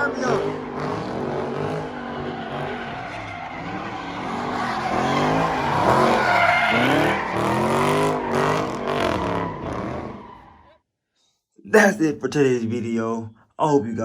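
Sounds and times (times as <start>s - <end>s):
car engine revving hard: 0.0s - 10.6s
tires squealing: 0.0s - 10.8s.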